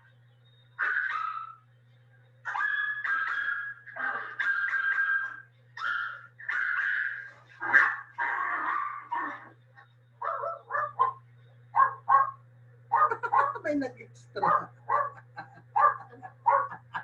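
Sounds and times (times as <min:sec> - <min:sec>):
dog howling: 0:00.8 - 0:01.6, 0:02.5 - 0:09.6, 0:10.2 - 0:11.2, 0:14.5 - 0:16.9
dog yelping: 0:00.8 - 0:01.6, 0:02.5 - 0:09.6, 0:10.2 - 0:13.6, 0:14.5 - 0:16.8.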